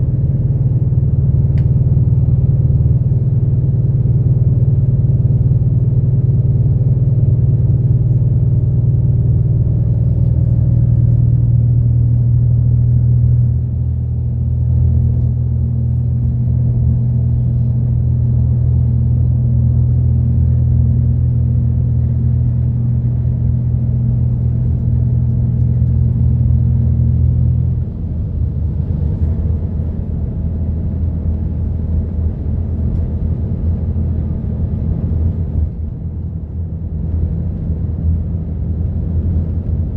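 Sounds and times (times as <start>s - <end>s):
bus engine drone: 0.0s - 39.9s.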